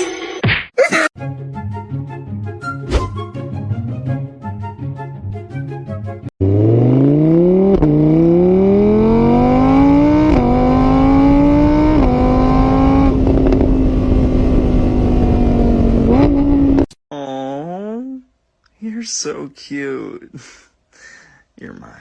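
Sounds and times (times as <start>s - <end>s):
vehicle engine accelerating: 6.4s - 16.9s.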